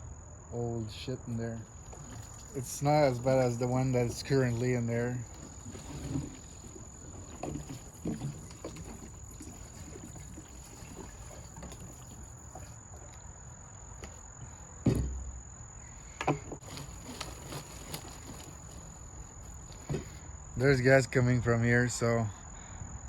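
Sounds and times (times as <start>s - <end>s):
crickets trilling: 0.0s - 23.0s
sharp knocks: 14.8s - 15.3s.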